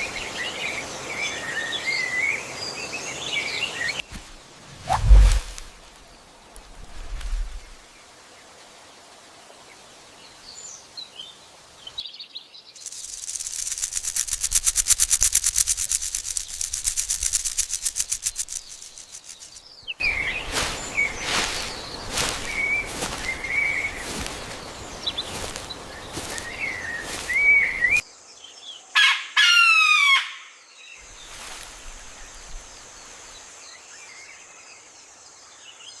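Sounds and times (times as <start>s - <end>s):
bird high-pitched rattle: 12.8s - 19.7s
bird chirping calls: 12.8s - 28.0s
faint bird chirps: 12.8s - 28.8s.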